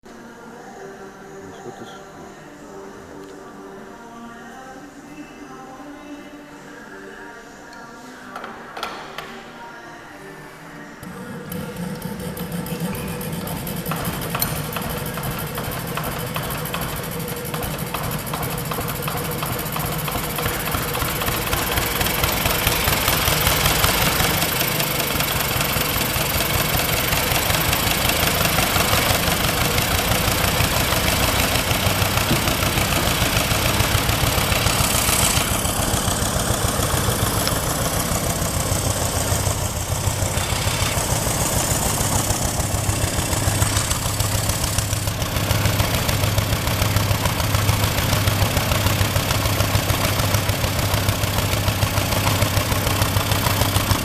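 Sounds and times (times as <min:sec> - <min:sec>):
compressor hiss: 0:11.0 - 0:54.0
diesel engine knocking: 0:11.0 - 0:54.0.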